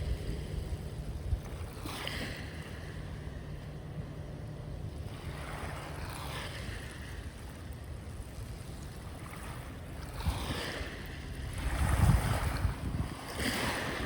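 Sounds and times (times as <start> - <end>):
sea waves washing on shore: 0.0 - 14.0.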